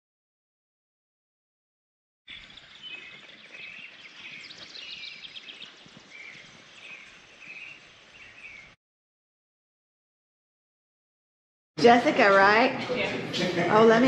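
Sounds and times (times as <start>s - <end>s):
songbirds calling: 2.3s - 8.8s
faint background noise: 11.8s - 14.0s.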